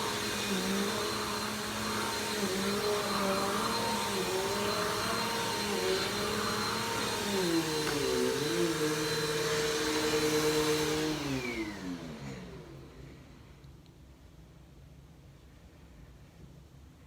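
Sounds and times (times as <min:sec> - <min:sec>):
vacuum cleaner motor running: 0:00.0 - 0:13.4.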